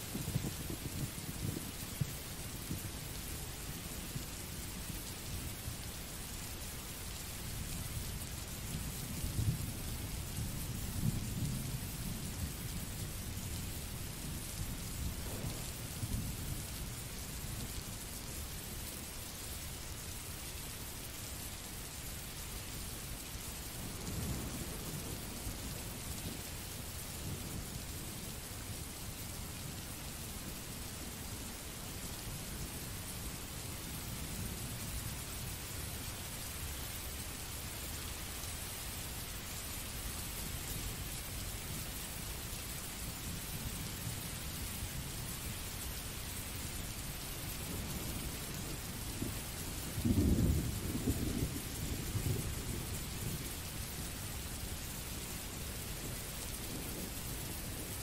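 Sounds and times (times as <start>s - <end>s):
low rolls of thunder: 0.0s - 5.0s, 8.6s - 17.8s, 23.8s - 28.3s, 47.5s - 58.0s
steady rainfall hiss: 0.0s - 58.0s.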